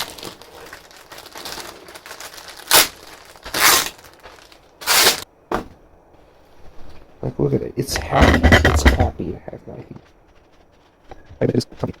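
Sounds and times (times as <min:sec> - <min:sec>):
material crinkling and rustling: 0:00.0 - 0:05.3, 0:08.2 - 0:12.0.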